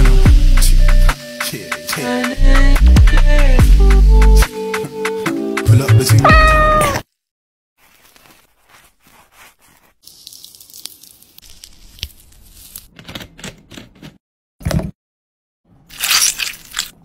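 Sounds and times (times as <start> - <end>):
soft rustling and tearing: 7.8 - 13.8.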